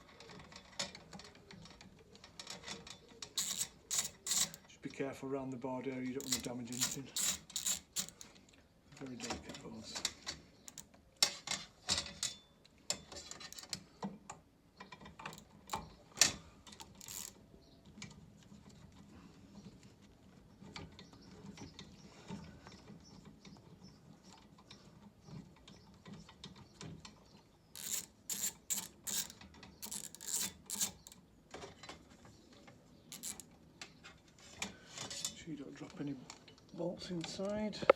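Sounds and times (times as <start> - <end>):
hand tool clicking on metal: 3.3 - 4.6, 6.2 - 8.3, 10.7 - 10.9, 16.8 - 17.4, 27.8 - 31.2, 33.1 - 33.5.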